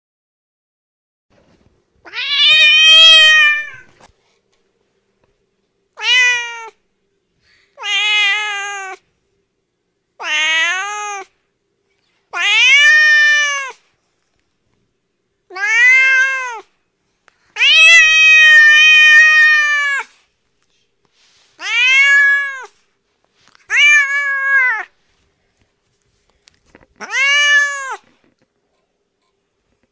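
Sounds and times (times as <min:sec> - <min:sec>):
cat meowing: 0:02.0 - 0:03.9, 0:06.0 - 0:06.8, 0:07.8 - 0:09.0, 0:10.2 - 0:11.3, 0:12.3 - 0:13.8, 0:15.5 - 0:16.7, 0:17.6 - 0:20.1, 0:21.6 - 0:22.8, 0:23.7 - 0:24.9, 0:27.0 - 0:28.2.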